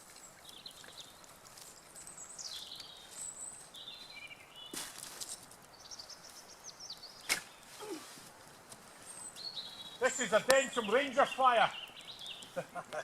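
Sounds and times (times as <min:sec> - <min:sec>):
small songbirds singing: 0:00.0 - 0:07.8, 0:08.8 - 0:13.0.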